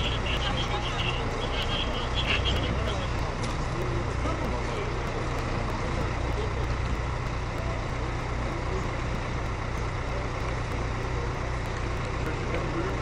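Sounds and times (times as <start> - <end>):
large engine humming: 0.0 - 13.0
outdoor noise: 0.0 - 13.0.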